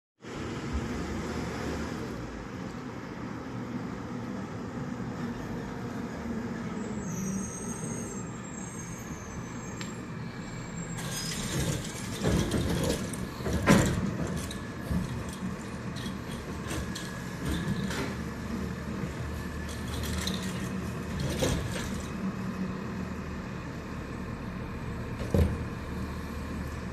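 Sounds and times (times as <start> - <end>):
garbage truck engine hum: 0.2 - 26.9
metal clanks and knocks: 11.0 - 18.2.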